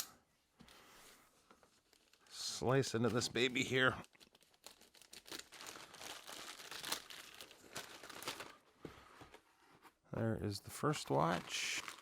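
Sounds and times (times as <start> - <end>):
package wrapping crinkling: 1.7 - 2.3, 3.3 - 8.7, 11.2 - 12.0.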